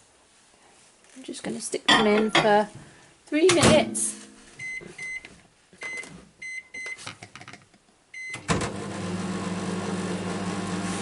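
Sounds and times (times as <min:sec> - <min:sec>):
microwave keypad beeps: 0:04.6 - 0:05.2, 0:05.8 - 0:07.0, 0:08.2 - 0:08.5
microwave oven humming: 0:08.4 - 0:11.0.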